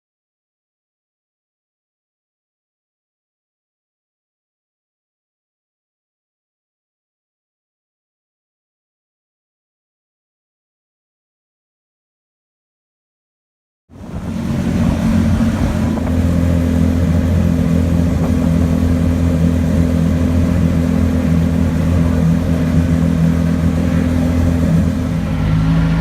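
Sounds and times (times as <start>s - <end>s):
race car engine idling: 14.0s - 26.0s.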